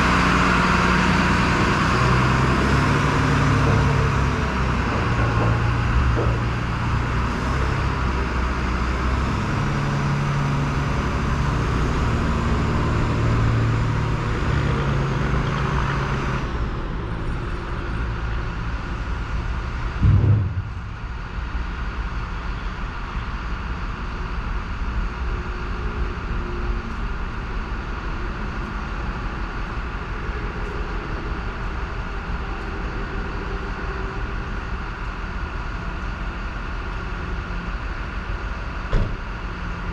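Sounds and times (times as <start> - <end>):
rushing road noise: 0.0 - 39.9
truck engine running: 0.0 - 39.9
thump: 20.0 - 21.1, 38.9 - 39.2.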